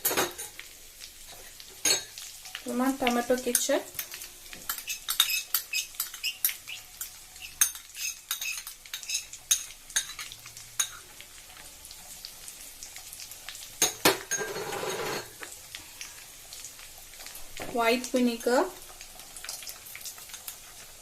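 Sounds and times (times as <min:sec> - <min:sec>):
faint sizzle: 0:00.0 - 0:21.0
utensil scraping a frying pan: 0:03.4 - 0:11.2, 0:13.9 - 0:15.4.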